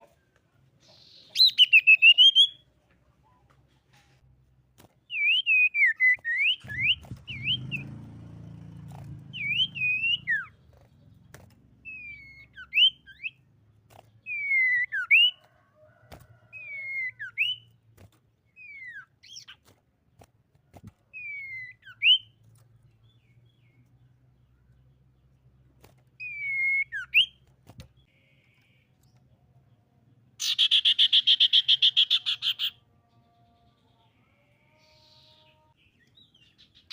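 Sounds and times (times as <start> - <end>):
bird whistling song: 0.8 - 2.6, 5.1 - 8.0, 9.3 - 10.6, 11.8 - 13.4, 14.2 - 15.4, 16.5 - 17.7, 18.5 - 19.6, 21.1 - 22.4, 26.2 - 27.4, 30.4 - 32.8.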